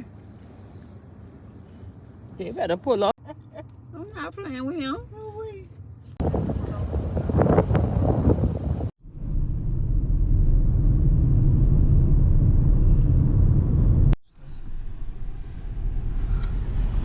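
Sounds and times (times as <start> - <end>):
car interior road rumble: 0.0 - 8.9.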